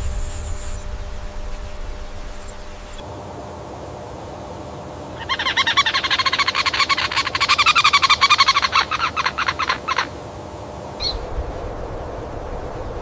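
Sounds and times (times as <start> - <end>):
steady background hiss: 0.0 - 13.0
animal rattling call: 5.2 - 10.2.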